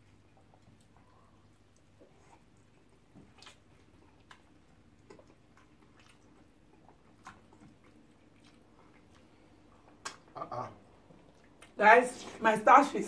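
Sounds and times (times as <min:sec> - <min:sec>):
soft chewing: 0:00.0 - 0:12.4
wet mouth clicks and smacks: 0:03.2 - 0:10.4.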